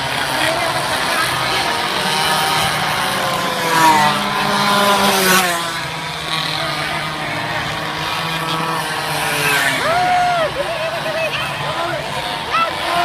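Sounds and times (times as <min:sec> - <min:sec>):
minibike engines racing: 0:00.0 - 0:13.0.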